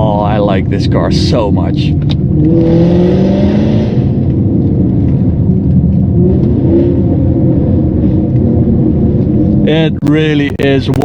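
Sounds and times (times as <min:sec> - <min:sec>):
car engine revving hard: 0:02.3 - 0:04.3.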